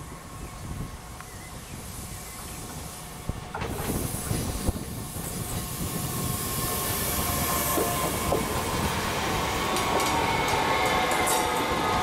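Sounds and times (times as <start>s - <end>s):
train wheels on track: 0.0s - 12.0s.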